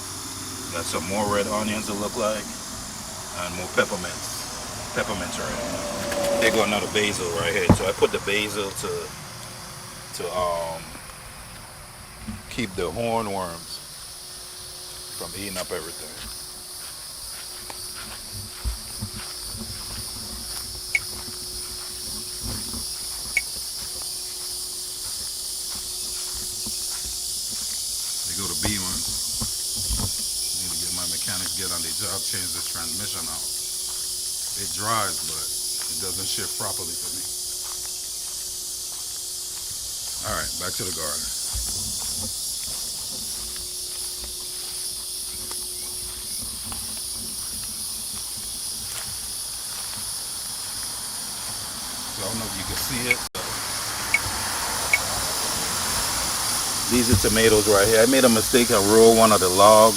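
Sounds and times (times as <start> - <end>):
insect chorus droning: 0.0 - 59.9
soft footsteps: 6.1 - 8.4, 10.5 - 53.2.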